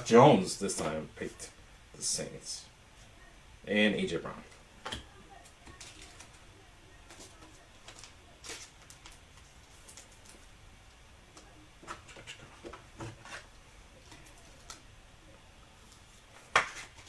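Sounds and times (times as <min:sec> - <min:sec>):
trading cards rustling and clicking: 0:05.6 - 0:10.5.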